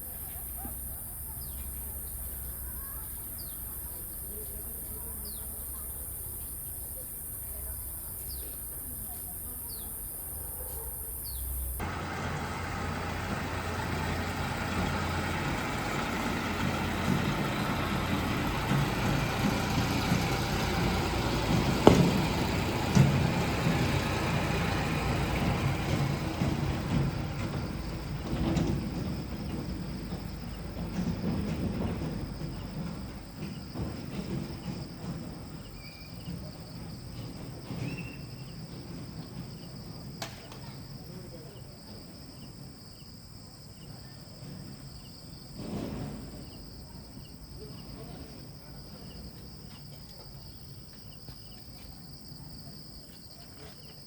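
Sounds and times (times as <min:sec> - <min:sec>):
vehicle engine and road noise: 0:00.0 - 0:43.2
crickets chirping: 0:00.0 - 0:54.0
sharp knocks: 0:21.7 - 0:23.4.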